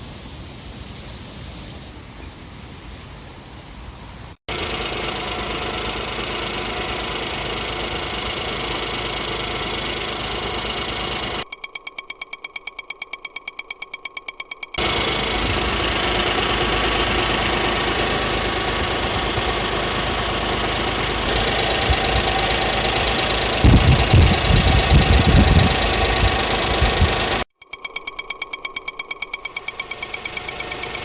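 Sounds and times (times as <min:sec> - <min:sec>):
car engine running: 0:14.7 - 0:27.5.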